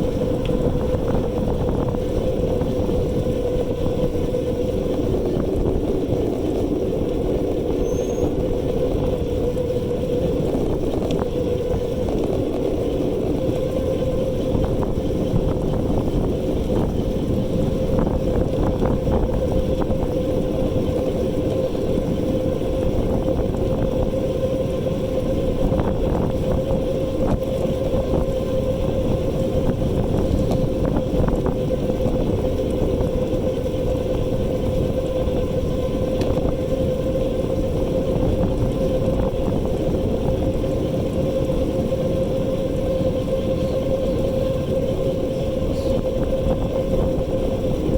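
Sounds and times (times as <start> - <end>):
electric motor whining: 0.0 - 47.9
road rumble: 0.0 - 47.9
wind: 0.0 - 47.9.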